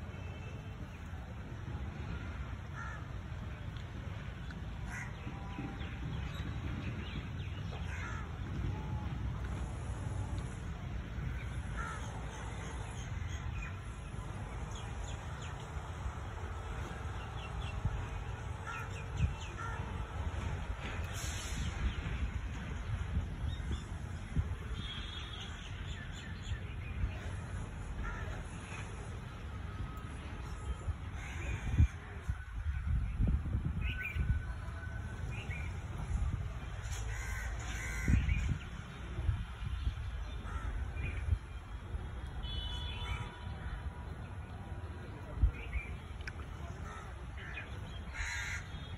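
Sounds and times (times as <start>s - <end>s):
birds calling and chirping: 45.4s - 48.9s.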